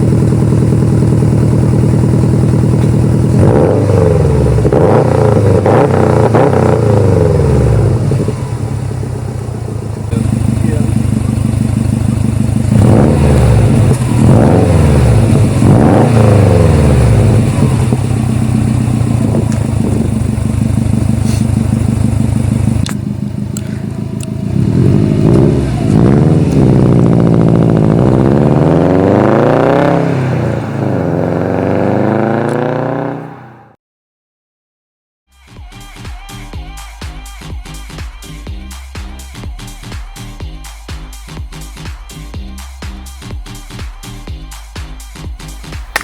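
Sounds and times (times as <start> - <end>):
car engine revving: 0.0 - 33.8.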